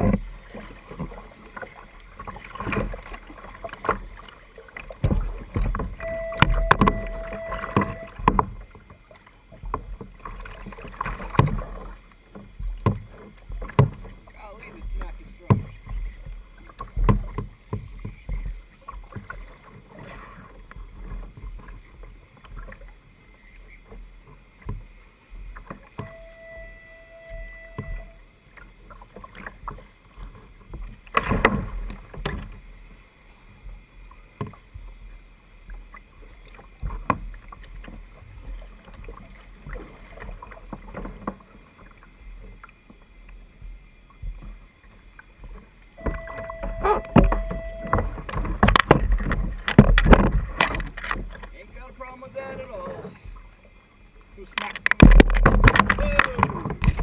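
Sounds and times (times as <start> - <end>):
water splashing: 0.0 - 57.0
steady tone: 6.0 - 8.4, 26.0 - 28.3, 46.0 - 48.4
knocks on kayak: 46.0 - 50.9, 54.8 - 57.0
wind rumble on microphone: 54.9 - 57.0.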